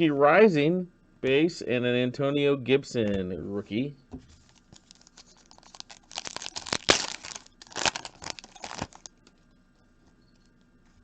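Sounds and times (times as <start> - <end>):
plastic wrapper tearing and crinkling: 4.4 - 9.3.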